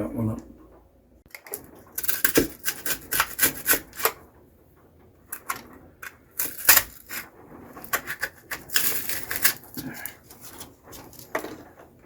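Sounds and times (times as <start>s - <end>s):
utility knife scraping foam: 2.0s - 4.2s, 6.4s - 11.3s.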